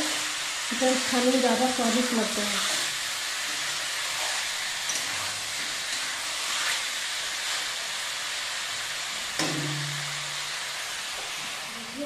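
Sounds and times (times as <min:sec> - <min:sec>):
chicken sizzling in a pan: 0:00.0 - 0:12.0
metal spatula scraping: 0:02.3 - 0:07.8.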